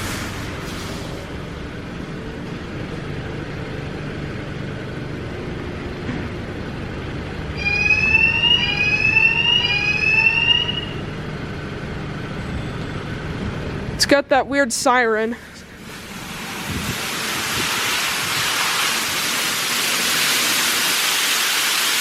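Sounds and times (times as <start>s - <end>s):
car wash machine humming: 0.0s - 12.4s, 15.2s - 22.0s
rising siren whoops: 7.6s - 11.2s.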